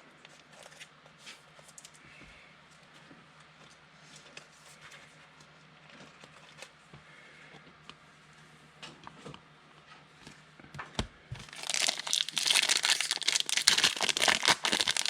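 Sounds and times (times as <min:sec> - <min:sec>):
trading cards being handled: 0:11.5 - 0:15.0.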